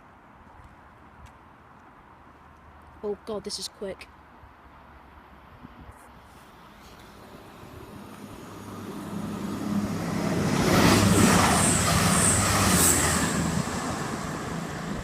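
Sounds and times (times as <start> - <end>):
train passing at speed: 6.3 - 15.0.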